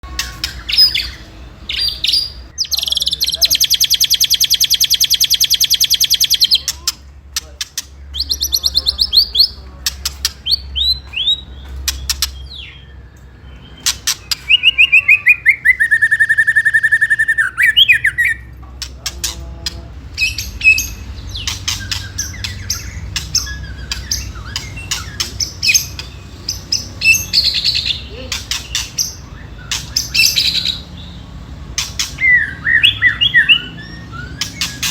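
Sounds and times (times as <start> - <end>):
bird clicking chips: 2.6 - 12.4, 20.8 - 30.4.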